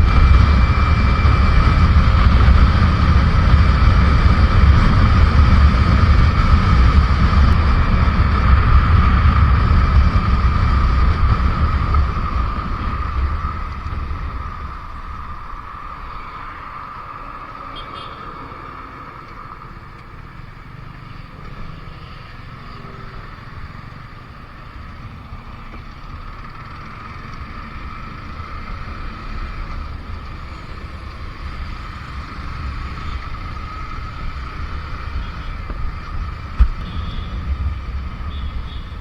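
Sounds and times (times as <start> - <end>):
wind buffeting microphone: 0.0 - 16.8
motorcycle engine rumble: 0.0 - 39.0.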